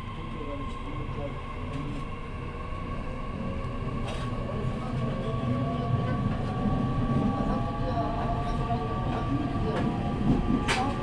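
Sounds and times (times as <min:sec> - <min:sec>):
wheels rumbling on rail: 0:03.4 - 0:11.0.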